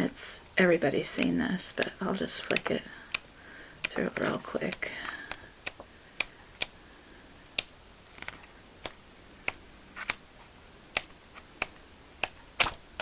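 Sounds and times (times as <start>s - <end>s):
paper pages snapping: 8.1s - 10.2s, 11.0s - 13.0s.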